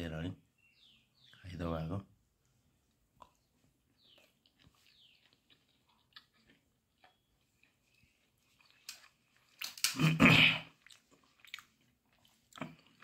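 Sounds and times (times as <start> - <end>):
person chewing food: 2.7 - 13.0
wet mouth clicks: 3.2 - 3.4.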